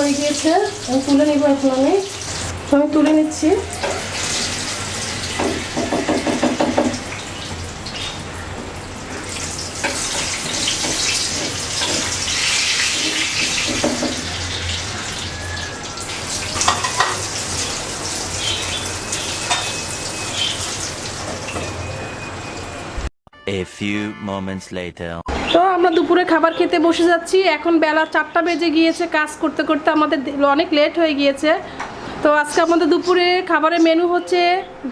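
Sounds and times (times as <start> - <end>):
food sizzling in oil: 0.0 - 22.9.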